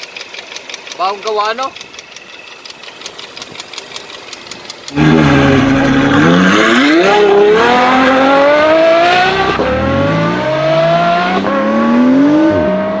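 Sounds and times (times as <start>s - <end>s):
car engine accelerating: 3.1s - 13.0s.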